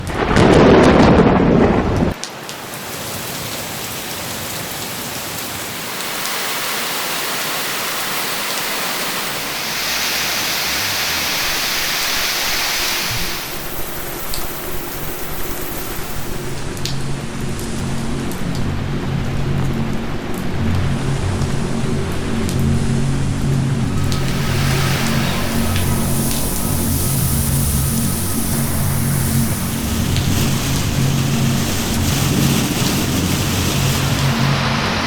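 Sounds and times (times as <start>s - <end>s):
thunder rumble: 0.0s - 2.2s, 23.7s - 35.0s
heavy rain pouring: 0.0s - 35.0s.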